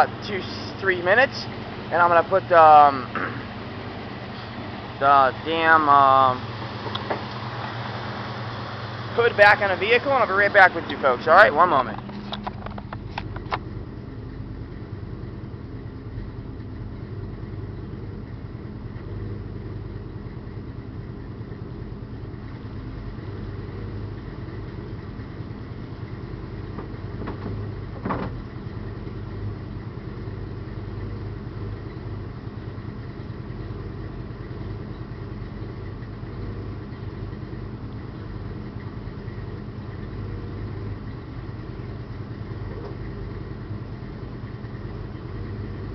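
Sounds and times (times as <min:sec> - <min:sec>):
car engine idling: 0:00.0 - 0:45.9
light knocks: 0:26.7 - 0:28.4.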